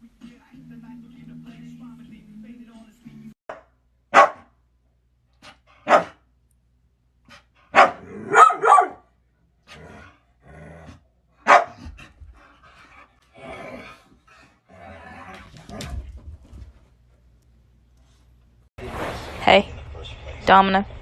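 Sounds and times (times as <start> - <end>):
dog barking: 3.5 - 4.6, 5.8 - 6.2, 7.7 - 9.1, 11.4 - 11.9.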